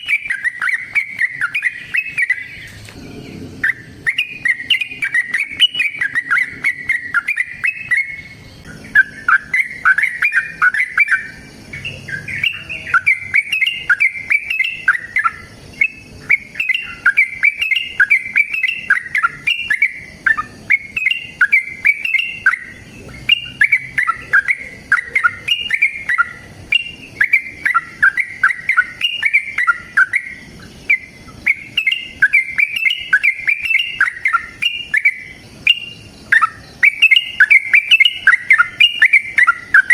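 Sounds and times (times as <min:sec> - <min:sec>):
bulbul singing chattering notes: 0:00.0 - 0:39.9.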